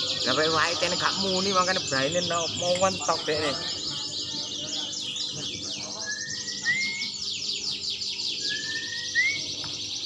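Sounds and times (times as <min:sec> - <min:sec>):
canaries singing trilled song: 0:00.0 - 0:10.0
rising whistled notes: 0:06.1 - 0:07.2, 0:08.4 - 0:09.5.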